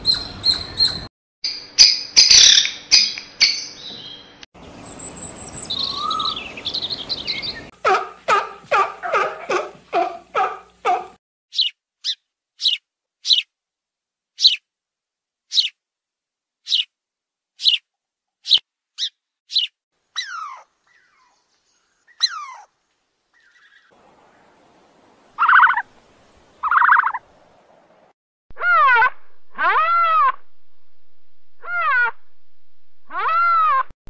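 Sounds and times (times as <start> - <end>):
sparrows chirping: 0.0 - 1.1, 2.2 - 7.7, 10.4 - 13.5, 14.4 - 14.6, 15.5 - 15.8, 16.6 - 16.9, 17.6 - 17.8, 18.4 - 22.7, 23.4 - 24.5
falling animal calls: 18.5 - 21.4, 22.1 - 22.7, 25.4 - 25.9, 28.6 - 30.4, 31.6 - 32.2, 33.1 - 33.9
loud buzzy animal calls: 20.2 - 21.3, 22.2 - 22.7
rising-and-falling animal call: 20.2 - 21.4, 22.2 - 22.7, 25.4 - 25.9, 28.6 - 30.4, 31.6 - 32.2, 33.1 - 33.9.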